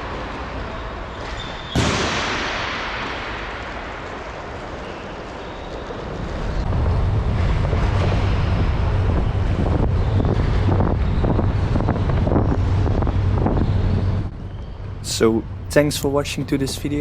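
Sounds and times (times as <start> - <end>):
wind buffeting microphone: 4.5 - 17.0.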